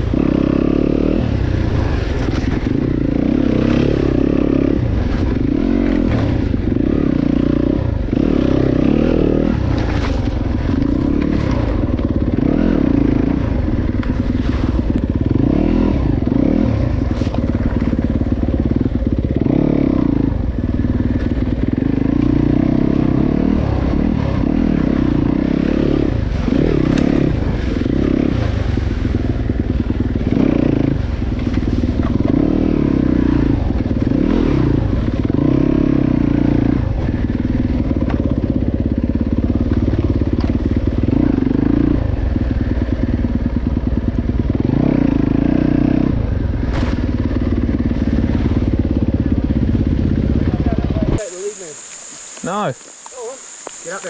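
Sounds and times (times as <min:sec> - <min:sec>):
dirt bike motor revving: 0:00.0 - 0:54.0
knocks and scrapes over rough ground: 0:09.3 - 0:12.2, 0:16.8 - 0:18.7, 0:31.1 - 0:32.7, 0:46.6 - 0:48.8.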